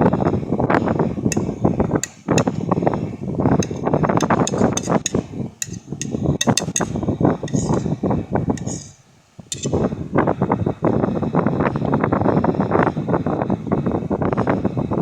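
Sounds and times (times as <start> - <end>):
spoon tapping against bowl: 1.3 - 2.8, 3.6 - 7.9, 8.6 - 9.8.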